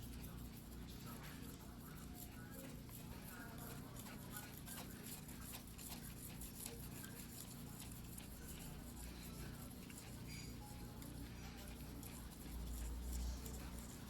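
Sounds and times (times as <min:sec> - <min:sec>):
knife scraping on whetstone: 0:05.0 - 0:14.0.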